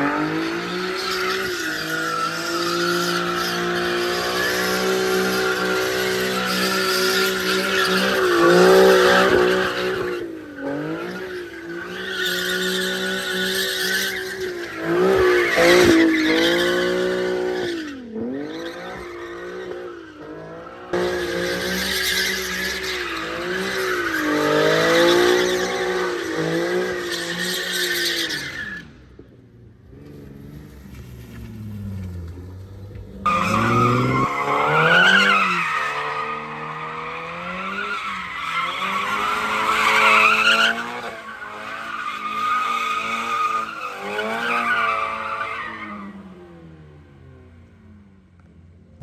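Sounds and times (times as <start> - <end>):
tires squealing: 0.0 - 29.2, 29.9 - 46.8.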